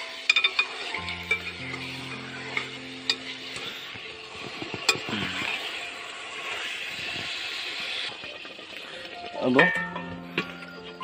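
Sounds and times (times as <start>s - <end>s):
chicken sizzling in oil: 0.0s - 11.0s
spoon clinking on metal pot: 0.2s - 1.8s.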